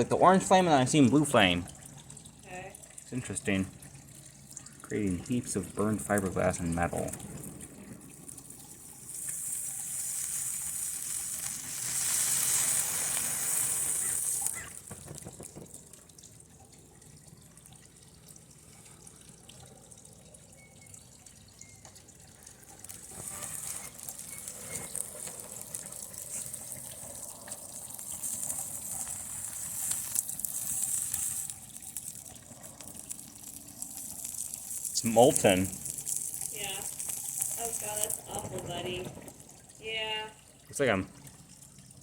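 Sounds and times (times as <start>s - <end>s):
faint crackles: 0.0s - 40.4s
circuit board burning hissing: 8.5s - 15.0s, 22.8s - 38.9s.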